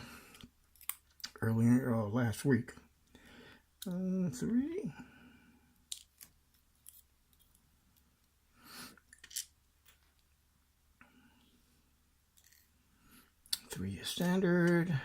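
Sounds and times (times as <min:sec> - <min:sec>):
small metal lock parts clicking: 0:05.9 - 0:07.4.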